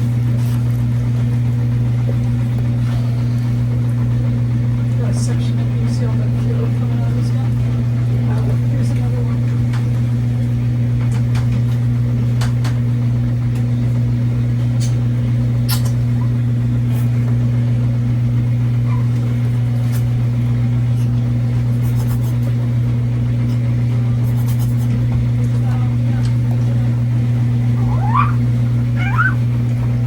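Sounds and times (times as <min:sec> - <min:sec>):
loud low hum: 0:26.0 - 0:30.0.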